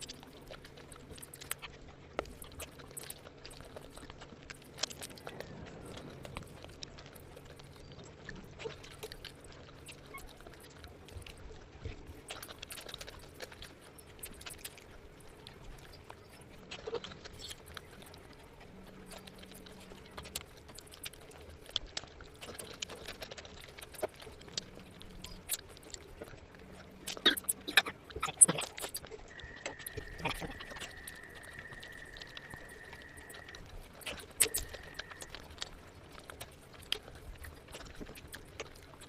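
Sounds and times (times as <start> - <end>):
person chewing: 0.0 - 39.0
wet mouth clicks and smacks: 16.8 - 39.0.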